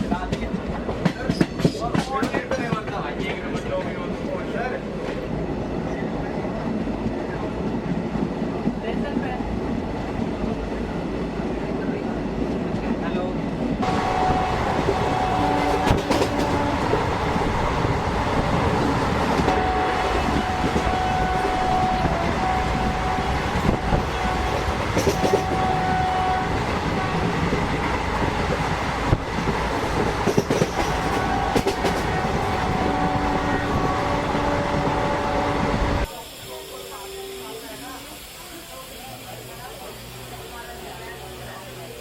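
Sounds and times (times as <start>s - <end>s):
wheels rumbling on rail: 0.0s - 42.0s
sharp rail clacks: 13.8s - 17.6s.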